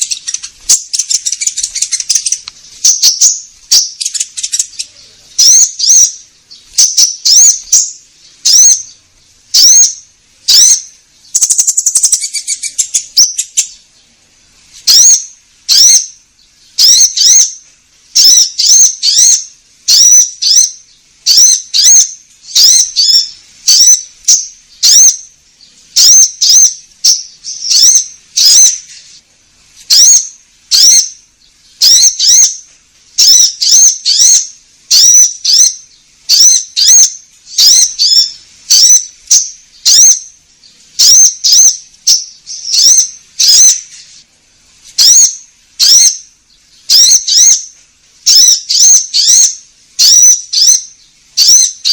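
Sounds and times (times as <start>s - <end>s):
bird chattering trill: 0.0s - 13.9s, 14.9s - 17.6s, 18.2s - 28.9s, 29.9s - 32.6s, 33.2s - 44.0s, 45.0s - 51.9s
songbird chirping: 0.0s - 51.9s.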